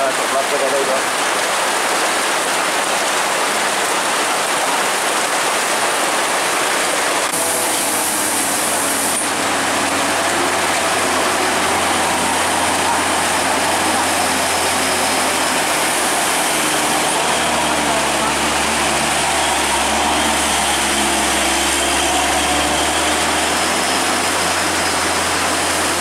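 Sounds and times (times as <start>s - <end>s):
heavy rain hissing: 0.0s - 26.0s
diesel truck engine rumble: 7.0s - 26.0s.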